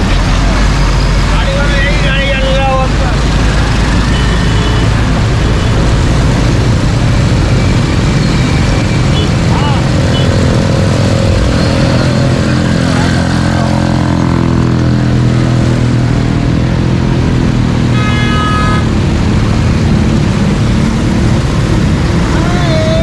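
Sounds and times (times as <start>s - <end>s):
road traffic rumble: 0.0s - 23.0s
vehicle horn: 4.1s - 4.9s, 17.9s - 18.9s.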